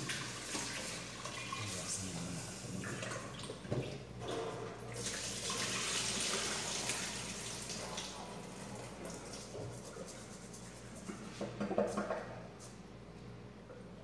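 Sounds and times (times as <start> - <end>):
tap water running into pot: 0.0 - 1.8, 5.0 - 9.5.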